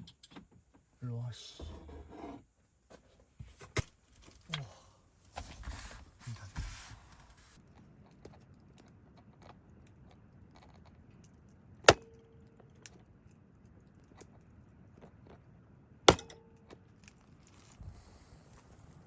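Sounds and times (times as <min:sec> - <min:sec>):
sharp knocks with ringing: 0:16.1 - 0:16.5.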